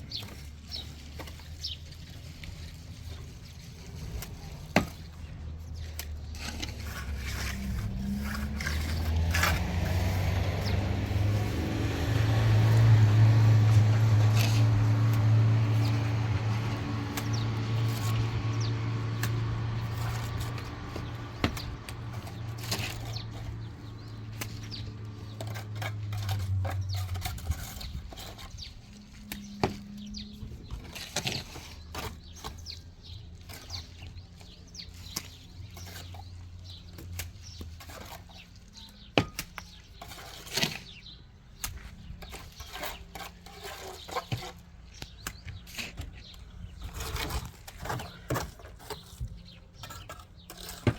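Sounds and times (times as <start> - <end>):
engine humming: 0.0 - 39.4.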